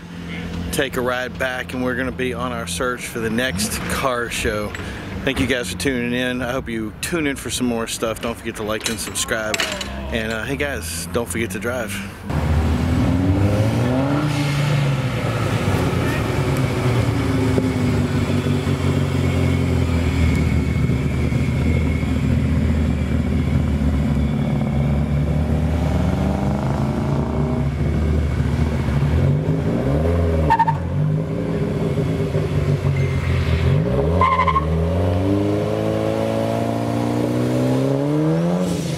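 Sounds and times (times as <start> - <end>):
car engine revving: 0.0 - 6.4, 10.2 - 38.9.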